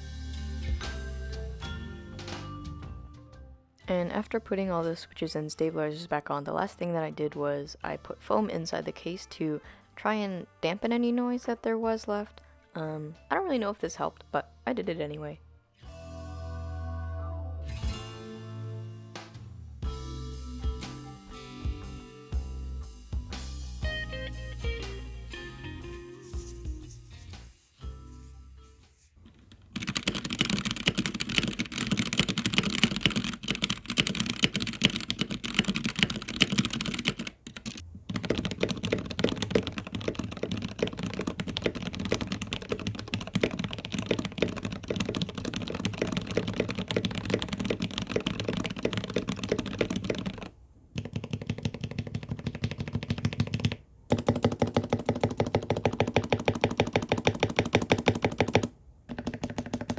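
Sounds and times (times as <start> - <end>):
fast typing on mechanical keyboard: 29.7 - 59.9.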